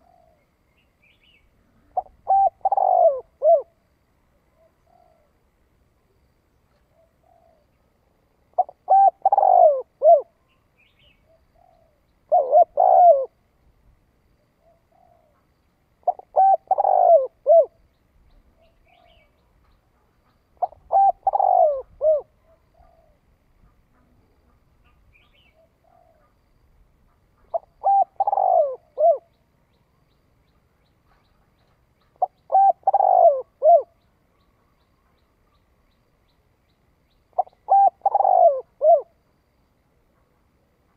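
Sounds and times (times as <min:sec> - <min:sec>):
dove cooing: 0:00.0 - 0:00.4, 0:01.5 - 0:03.8, 0:04.6 - 0:05.4, 0:06.9 - 0:07.8, 0:08.5 - 0:10.4, 0:11.0 - 0:13.4, 0:14.6 - 0:17.8, 0:20.6 - 0:26.4, 0:27.1 - 0:29.4, 0:32.2 - 0:34.0, 0:37.3 - 0:39.2.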